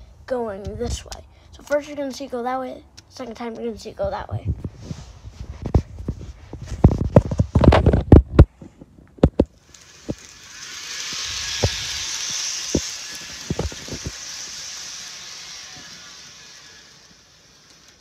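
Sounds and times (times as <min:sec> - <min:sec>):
wheels clicking over rail joints: 0:09.1 - 0:18.0
model train motor whirring: 0:09.4 - 0:18.0.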